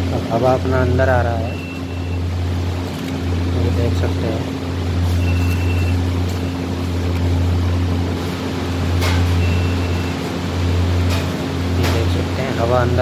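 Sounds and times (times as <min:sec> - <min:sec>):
exhaust fans humming: 0:00.0 - 0:13.0.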